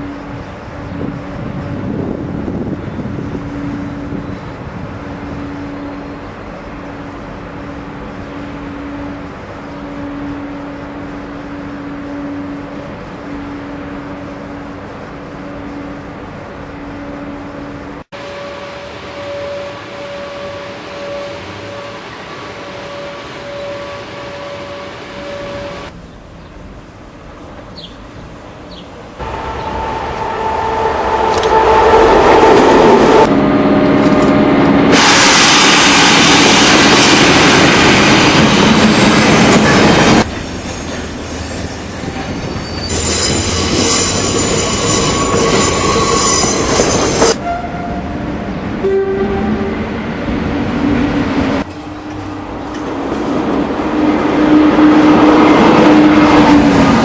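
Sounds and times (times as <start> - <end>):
trains passing: 0.0 - 57.0
train wheel squeal: 18.2 - 25.9, 29.2 - 33.3, 35.6 - 48.1.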